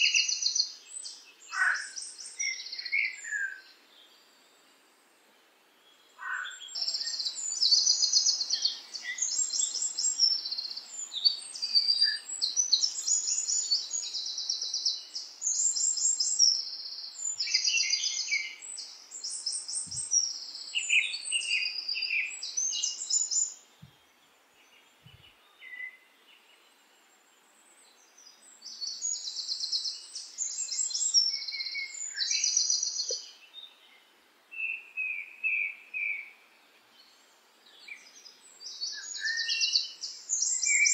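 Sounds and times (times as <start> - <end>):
songbird trilling: 38.8 - 40.9.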